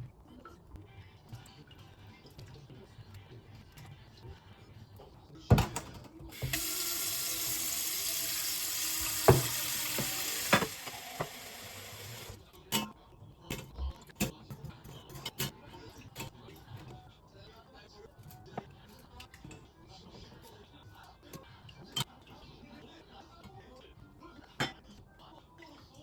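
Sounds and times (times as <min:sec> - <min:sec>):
tap running into sink: 0:06.4 - 0:12.4.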